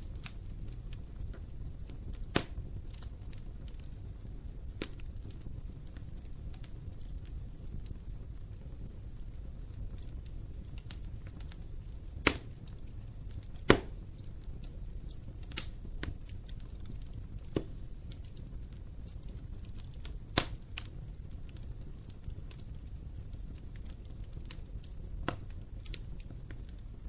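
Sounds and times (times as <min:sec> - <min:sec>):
wood fire crackling: 0:00.0 - 0:27.0
sharp loud pops of fire: 0:02.2 - 0:03.3, 0:12.2 - 0:12.7, 0:13.3 - 0:14.1, 0:20.0 - 0:20.9.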